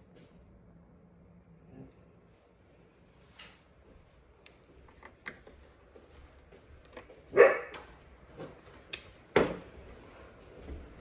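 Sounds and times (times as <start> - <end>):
dog barking: 7.3 - 7.8.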